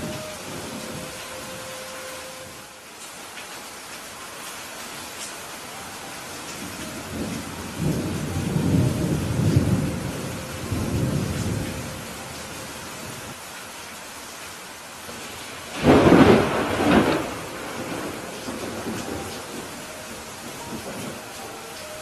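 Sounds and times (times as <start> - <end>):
thunder rumbling: 0.0 - 2.7, 6.5 - 13.4, 15.2 - 22.0
rain hissing: 0.0 - 22.0.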